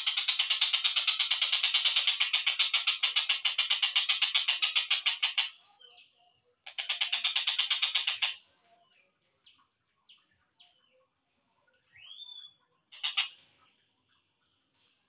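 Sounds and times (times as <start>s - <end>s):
kingfisher rattling call: 0.0s - 5.6s, 6.7s - 8.4s, 12.9s - 13.4s.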